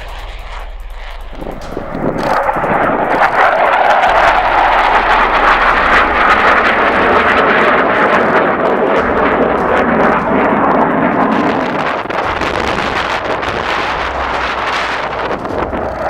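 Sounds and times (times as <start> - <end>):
jet flying by low: 1.2 - 12.2.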